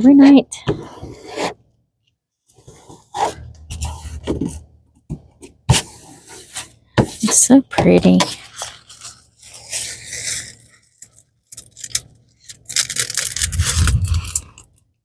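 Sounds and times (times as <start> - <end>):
canvas rustling and scraping: 12.7 - 14.6
low rumble: 13.3 - 14.6.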